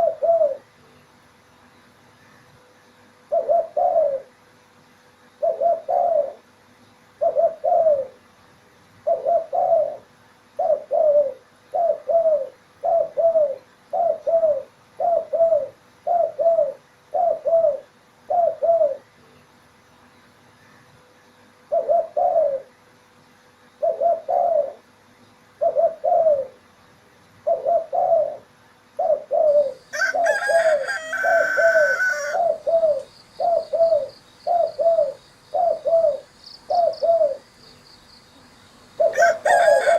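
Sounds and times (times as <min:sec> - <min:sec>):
dove cooing: 0:00.0 - 0:00.7, 0:03.3 - 0:04.4, 0:05.4 - 0:06.5, 0:07.2 - 0:08.3, 0:09.0 - 0:19.1, 0:21.7 - 0:22.8, 0:23.8 - 0:24.9, 0:25.6 - 0:26.6, 0:27.4 - 0:37.6, 0:38.8 - 0:39.9
high-pitched bird call: 0:29.5 - 0:37.4.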